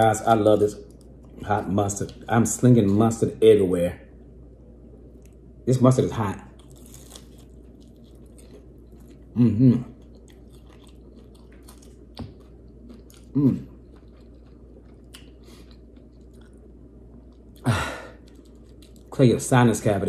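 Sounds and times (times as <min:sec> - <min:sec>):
person chewing crispy food: 0:06.5 - 0:19.2.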